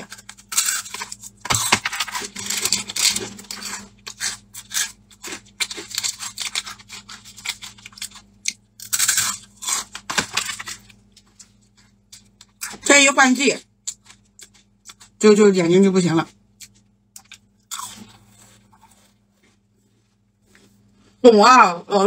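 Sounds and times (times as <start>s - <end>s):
crunchy snack chewing: 0.0s - 12.8s, 13.8s - 15.2s, 16.6s - 19.6s.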